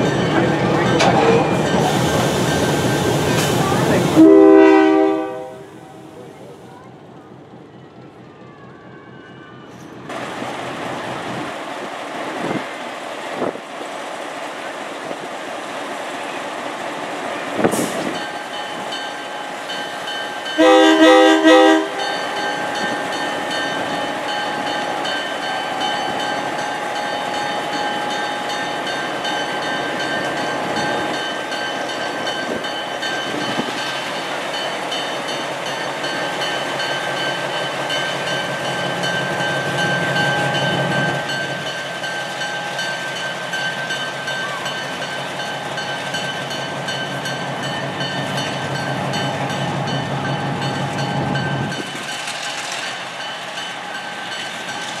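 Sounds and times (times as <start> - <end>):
train rumbling on track: 0.0 - 55.0
train horn blowing: 4.2 - 5.9, 20.6 - 22.2.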